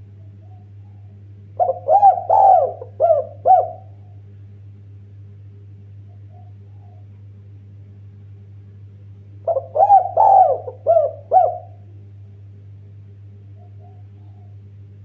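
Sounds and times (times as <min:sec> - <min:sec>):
dove cooing: 0:00.0 - 0:04.2, 0:06.1 - 0:07.2, 0:09.4 - 0:11.9, 0:13.5 - 0:14.7
steady low hum: 0:00.0 - 0:15.0.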